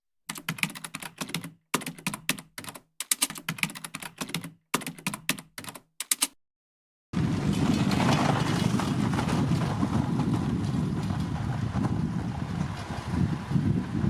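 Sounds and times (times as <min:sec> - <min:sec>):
rapid keyboard typing: 0:00.3 - 0:06.4.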